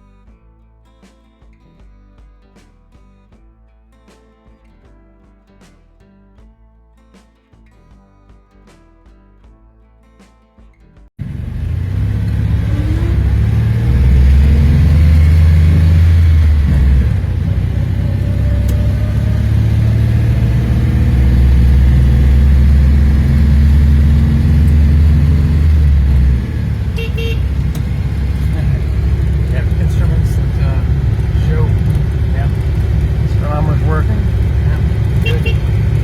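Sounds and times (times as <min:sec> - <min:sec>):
car engine revving: 0:11.2 - 0:36.0.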